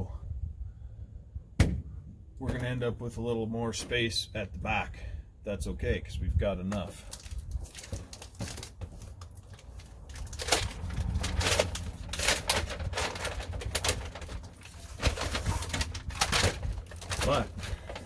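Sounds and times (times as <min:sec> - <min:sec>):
foil sheets crinkling: 0:06.8 - 0:18.0.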